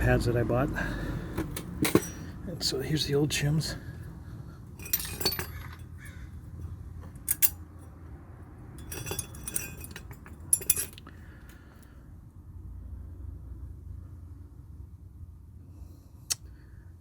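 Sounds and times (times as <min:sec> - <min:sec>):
small metal parts clinking: 0:01.6 - 0:02.4, 0:04.7 - 0:07.9, 0:08.8 - 0:11.5.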